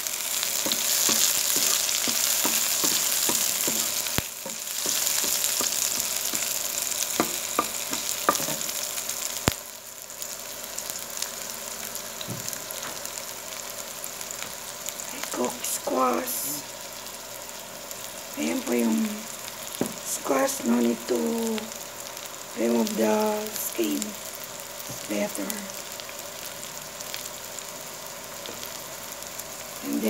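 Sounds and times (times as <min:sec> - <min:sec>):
onion and garlic sizzling in oil: 0:00.0 - 0:30.0
wooden spoon scraping wok: 0:00.3 - 0:08.8.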